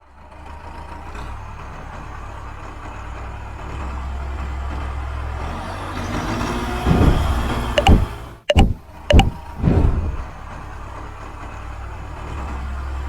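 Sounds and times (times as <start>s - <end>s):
vehicle engine rumbling: 6.2s - 13.0s.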